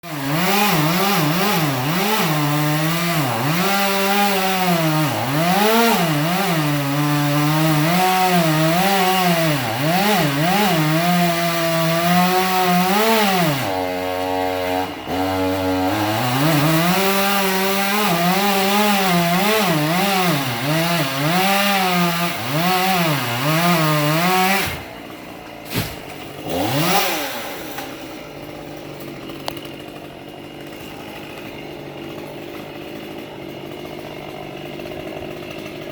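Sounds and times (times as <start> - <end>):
small petrol engine revving: 0.0 - 24.9, 26.5 - 28.1.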